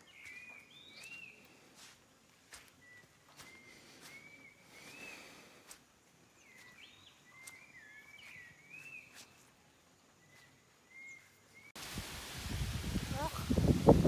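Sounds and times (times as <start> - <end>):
whistled bird calls: 2.8 - 5.3.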